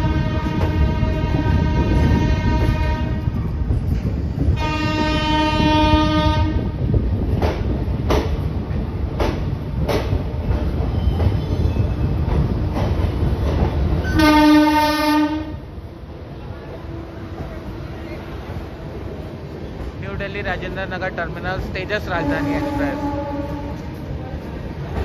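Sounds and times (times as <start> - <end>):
train horn blasts: 0.0 - 3.4, 4.6 - 6.8, 14.0 - 15.6, 22.2 - 24.0
moving train rumbling: 0.0 - 25.0.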